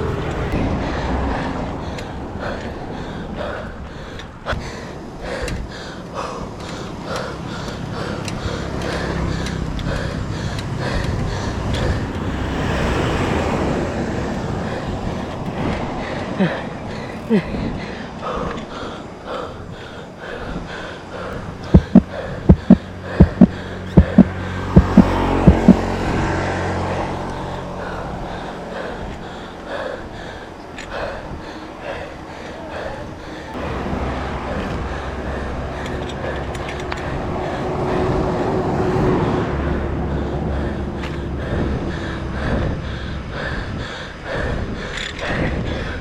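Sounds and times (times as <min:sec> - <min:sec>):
wind rumbling on microphone: 0:00.0 - 0:32.2, 0:32.9 - 0:46.0
vehicle approaching hum: 0:00.0 - 0:45.3
heavy rhythmic breathing: 0:00.0 - 0:46.0
loud low thumps: 0:21.8 - 0:25.8.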